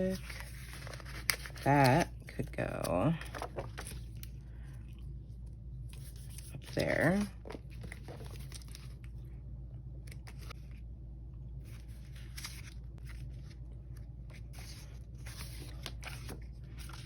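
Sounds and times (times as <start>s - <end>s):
stickers crinkling and rustling: 0.0s - 4.4s, 5.9s - 9.3s
steady low hum: 0.0s - 17.0s.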